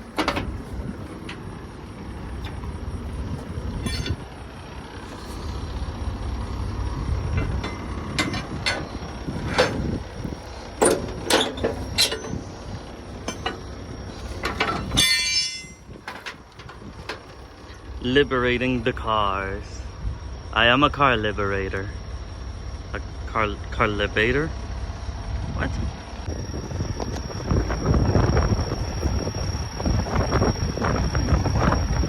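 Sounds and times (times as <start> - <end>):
metal clanks and knocks: 0.0 - 4.3, 7.2 - 17.8
low engine rumble: 0.0 - 32.0.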